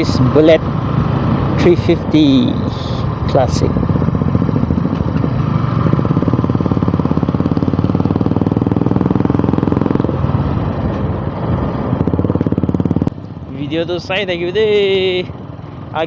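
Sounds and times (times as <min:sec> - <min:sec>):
motorcycle engine thumping: 0:03.8 - 0:11.2.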